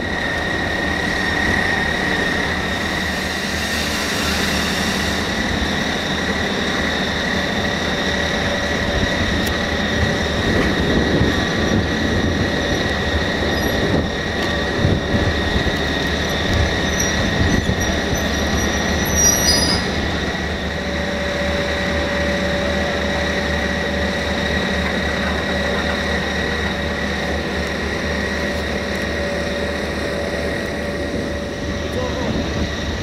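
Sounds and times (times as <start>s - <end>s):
high whine: 0.0s - 33.0s
train rumble: 0.0s - 33.0s
wheel squeals against rails: 13.3s - 14.5s, 15.8s - 20.3s.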